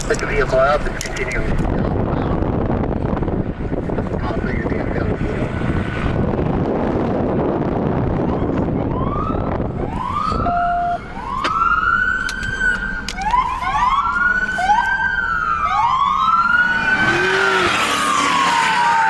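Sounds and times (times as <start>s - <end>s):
wind rumble on microphone: 0.0s - 17.8s
police sirens wailing: 8.2s - 19.0s.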